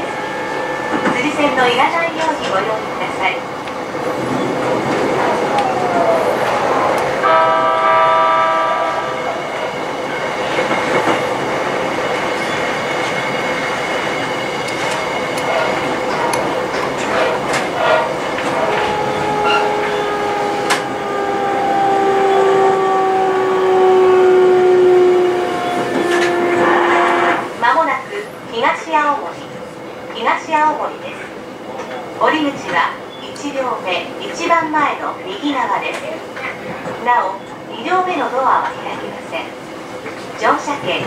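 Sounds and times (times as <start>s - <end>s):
rail clicks: 0.0s - 7.3s, 9.2s - 23.9s, 25.2s - 31.2s, 31.8s - 41.0s
train running noise: 0.0s - 41.0s
train horn: 7.2s - 9.2s, 17.8s - 27.5s.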